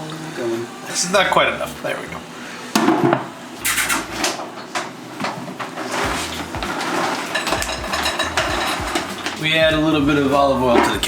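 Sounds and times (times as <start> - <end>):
utensils and dishes clinking: 2.8 - 11.0.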